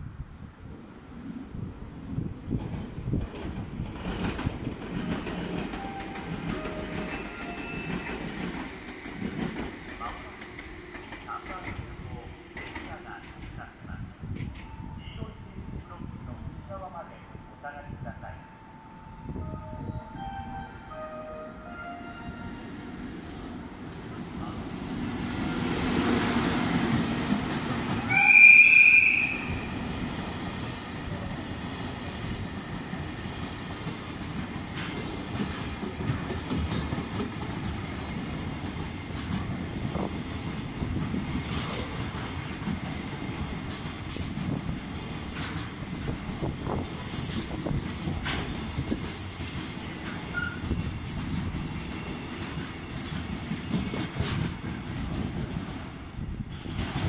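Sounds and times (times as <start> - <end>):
electric locomotive passing: 0.6 - 57.0
train wheel rumble: 1.5 - 18.4, 22.2 - 57.0
rail joint clicks: 2.5 - 15.3, 32.1 - 57.0.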